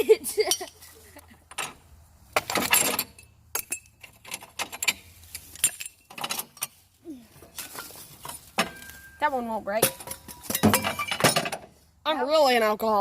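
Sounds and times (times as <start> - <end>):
glass shards clinking: 2.4 - 6.8, 9.8 - 11.5
glass breaking: 9.8 - 11.5.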